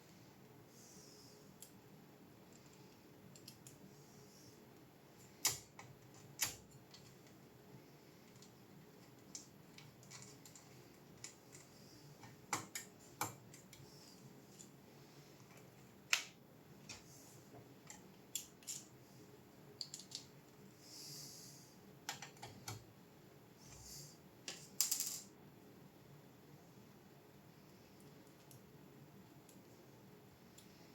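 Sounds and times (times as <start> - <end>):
small metal and plastic parts clicking: 2.5 - 3.8, 8.3 - 13.8, 17.8 - 18.9.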